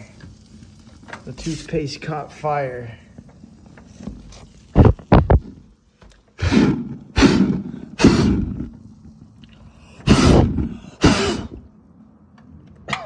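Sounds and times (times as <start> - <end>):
person breathing out loudly: 6.4 - 8.7, 9.7 - 11.7.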